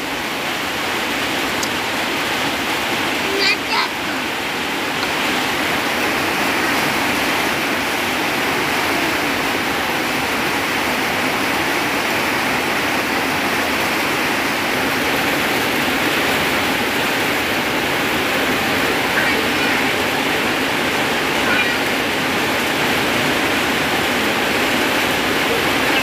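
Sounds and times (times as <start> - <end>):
heavy rain splashing into puddles: 0.0 - 26.0.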